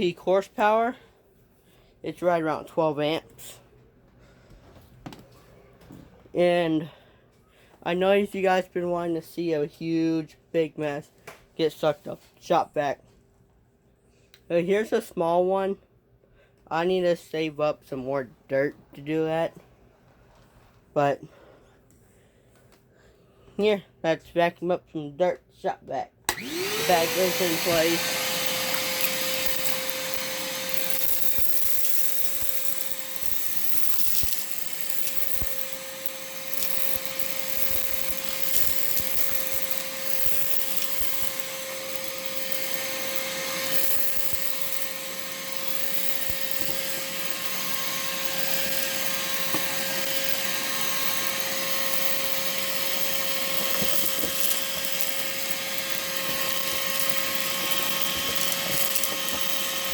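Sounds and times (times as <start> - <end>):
shop vacuum running: 26.3 - 59.9
small clicks: 28.4 - 59.9.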